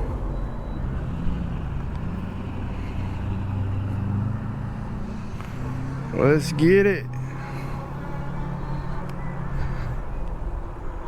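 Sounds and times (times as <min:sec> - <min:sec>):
e-bike riding rumble and hum: 0:00.0 - 0:11.0.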